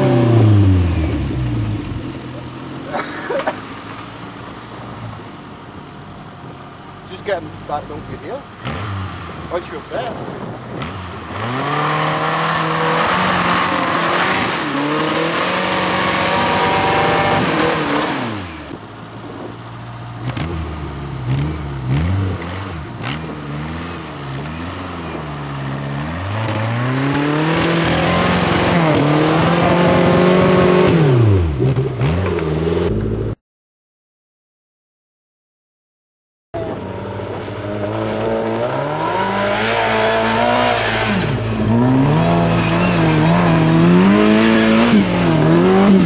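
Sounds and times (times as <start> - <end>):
engine revving: 0.0 - 2.4, 8.6 - 18.8, 20.2 - 33.4, 36.6 - 46.0.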